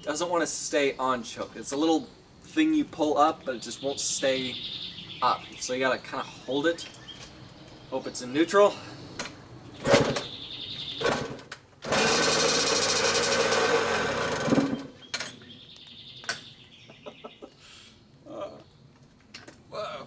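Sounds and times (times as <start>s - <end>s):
engine kick-start: 9.8s - 10.4s, 11.0s - 15.0s
two-stroke engine running: 11.0s - 15.0s.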